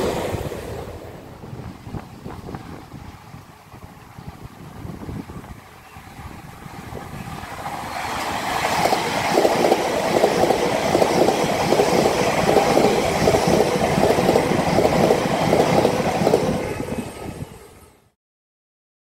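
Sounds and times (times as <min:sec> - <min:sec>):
passenger train passing: 0:00.0 - 0:18.2.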